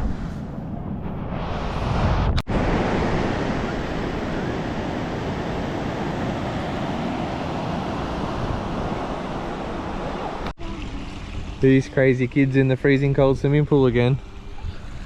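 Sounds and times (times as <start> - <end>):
wind rushing: 0.0 - 10.5
wind buffeting microphone: 0.0 - 11.7.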